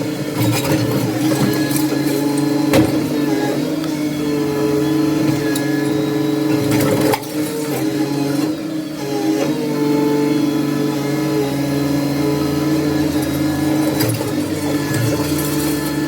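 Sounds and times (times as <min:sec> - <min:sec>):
heavy machine engine running: 0:00.0 - 0:16.0
debris cracking and crunching: 0:12.9 - 0:16.0.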